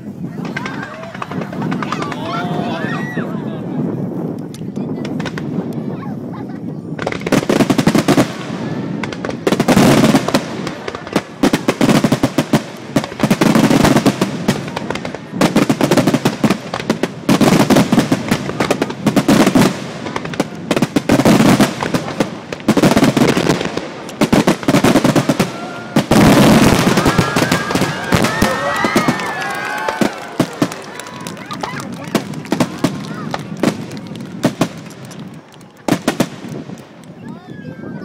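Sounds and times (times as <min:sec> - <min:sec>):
fireworks crackling: 0:00.0 - 0:37.5
fireworks shells bursting: 0:07.0 - 0:37.2.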